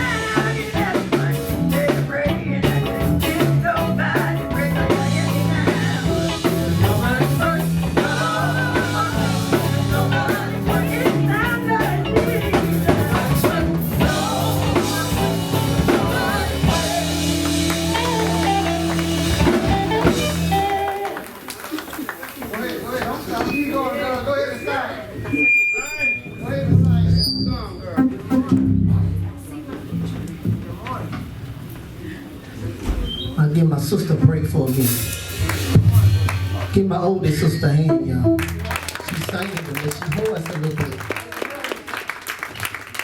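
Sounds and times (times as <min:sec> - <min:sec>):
electric bass: 0:00.0 - 0:21.2, 0:26.5 - 0:30.8, 0:34.0 - 0:39.0
person singing: 0:00.0 - 0:21.2
drum kit: 0:00.0 - 0:22.1, 0:26.6 - 0:27.3, 0:28.0 - 0:31.6, 0:34.1 - 0:39.6
guitar: 0:00.0 - 0:22.1, 0:23.4 - 0:31.8, 0:34.2 - 0:39.1.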